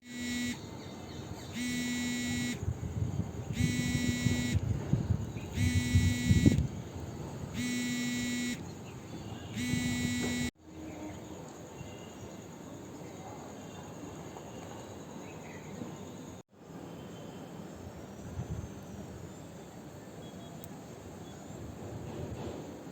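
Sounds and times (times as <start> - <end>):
electronic beeper beeping: 0.0 - 0.6, 1.6 - 2.6, 3.6 - 4.6, 5.5 - 6.6, 7.6 - 8.6, 9.6 - 10.5.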